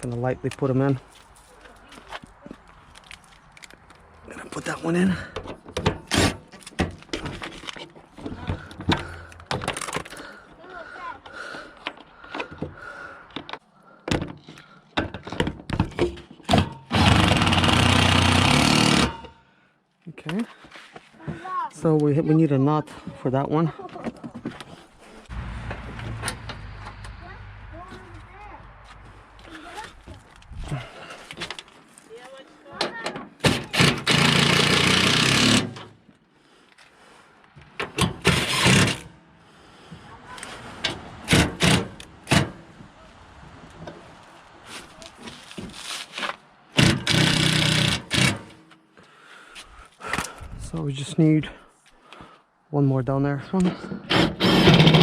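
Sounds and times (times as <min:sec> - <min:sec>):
power tool running: 0:16.9 - 0:19.3, 0:33.8 - 0:35.8, 0:46.8 - 0:48.4
parts and screws knocking: 0:46.8 - 0:48.7.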